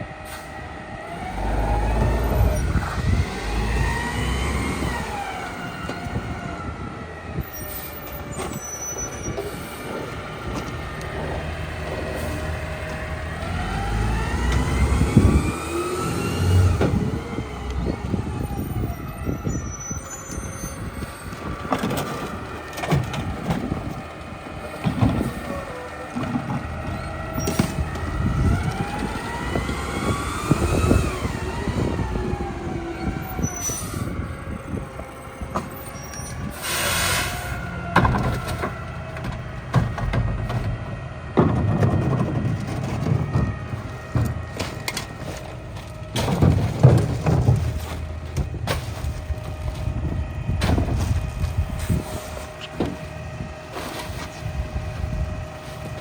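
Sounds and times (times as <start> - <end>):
truck engine and hydraulics: 0.0 - 56.0
clanks and bangs of trash: 21.0 - 31.0, 37.4 - 56.0.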